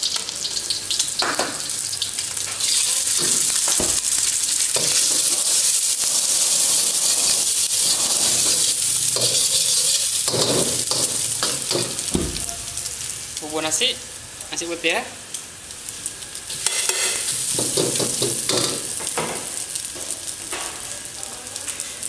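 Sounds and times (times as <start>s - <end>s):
egg sizzling in a wok: 0.0s - 22.0s
metal spatula scraping a wok: 6.4s - 11.7s, 16.6s - 17.3s.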